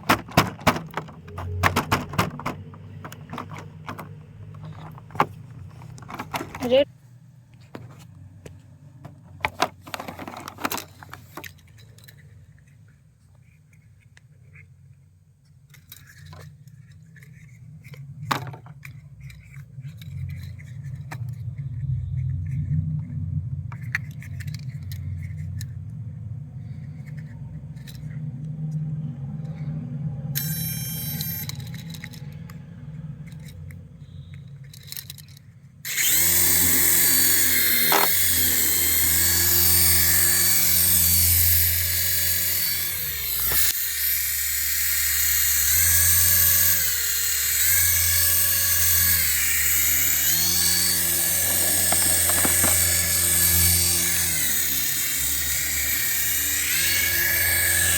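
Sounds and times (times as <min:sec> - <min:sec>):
toy packaging being handled: 0:00.0 - 0:06.9, 0:09.0 - 0:28.5, 0:30.4 - 0:32.5, 0:33.2 - 0:57.9
electric motor high whine: 0:28.8 - 0:34.4, 0:35.9 - 0:57.9.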